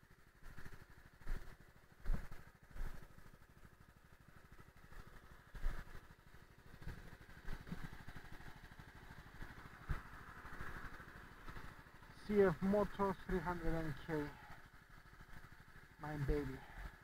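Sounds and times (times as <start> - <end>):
motorcycle engine idling: 0.0 - 17.0
engine thumps: 0.6 - 3.2, 6.8 - 11.7.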